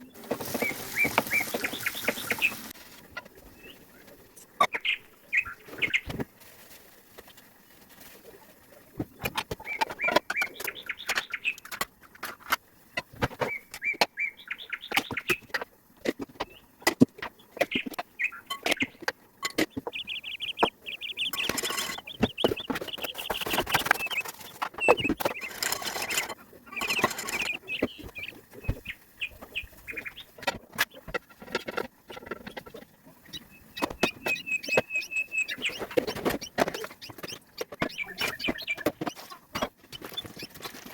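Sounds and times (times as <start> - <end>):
small birds chirping: 0.0 - 6.2, 6.8 - 11.8, 12.8 - 40.9.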